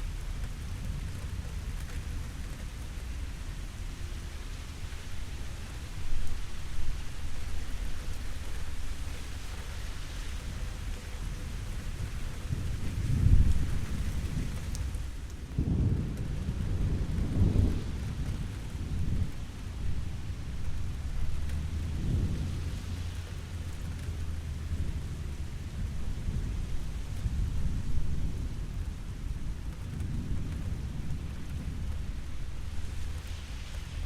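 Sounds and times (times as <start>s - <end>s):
steady rain hissing: 0.0s - 34.0s
thunder rumbling: 11.4s - 34.0s.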